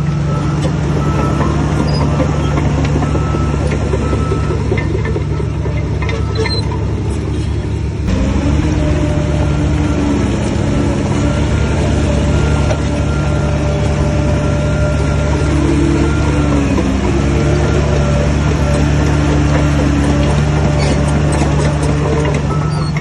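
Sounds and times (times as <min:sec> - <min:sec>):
bulldozer diesel engine revving: 0:00.0 - 0:23.0.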